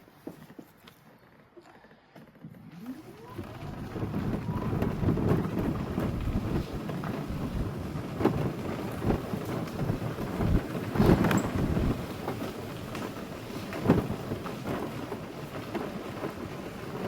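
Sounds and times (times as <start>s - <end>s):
car road and wind noise: 3.4s - 17.0s.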